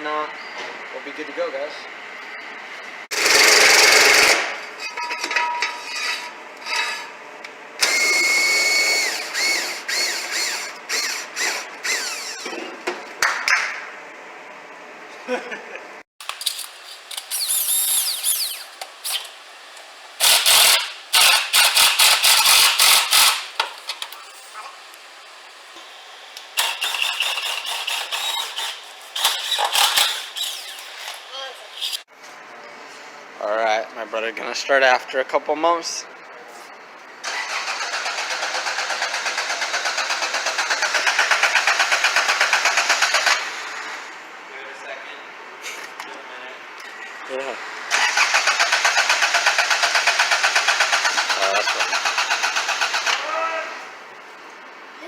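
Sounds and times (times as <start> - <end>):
power tool rattling on lug nuts: 16.2 - 19.4, 20.2 - 24.6, 25.8 - 32.1, 47.9 - 53.2
metallic squeaks: 16.4 - 19.3, 26.6 - 32.1.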